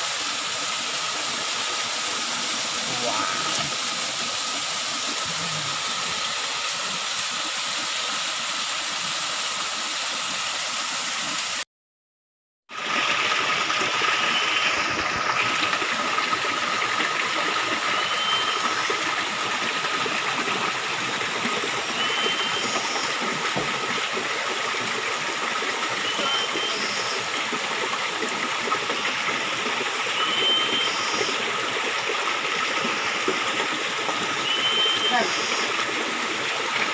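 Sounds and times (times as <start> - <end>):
waterfall rushing: 0.0 - 9.0.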